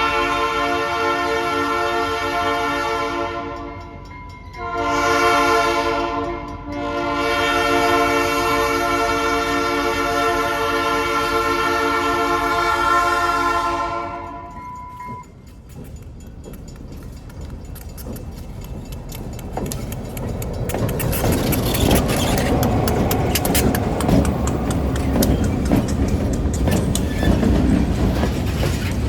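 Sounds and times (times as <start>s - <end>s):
locomotive air horn blasts: 0.0s - 3.8s, 4.6s - 15.2s.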